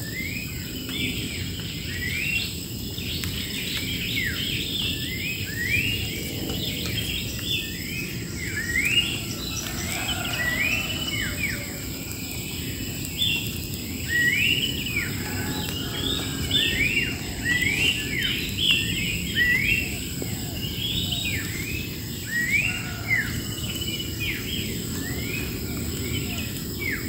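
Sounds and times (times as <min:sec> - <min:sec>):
high insect drone: 0:00.0 - 0:27.0
low rumbling noise: 0:05.9 - 0:22.3
birds whistling: 0:13.4 - 0:27.0.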